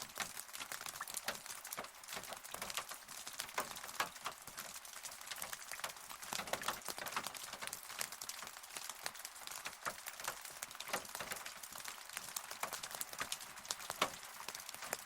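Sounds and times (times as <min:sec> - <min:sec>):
raindrops pattering: 0:00.0 - 0:15.0.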